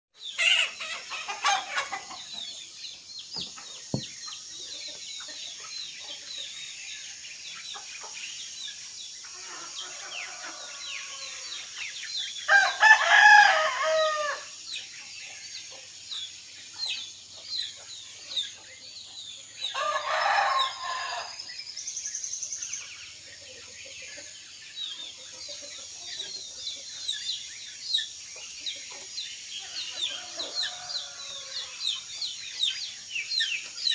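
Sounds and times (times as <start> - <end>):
small birds chirping: 0.1 - 33.9
roosters crowing: 9.3 - 11.8, 12.5 - 14.6, 19.6 - 21.5, 29.6 - 32.1.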